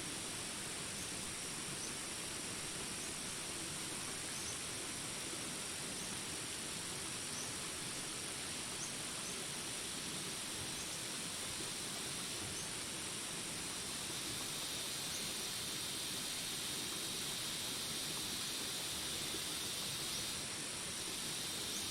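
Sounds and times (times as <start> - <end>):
steady rain hiss: 0.0 - 21.9
insects trilling: 8.8 - 21.9.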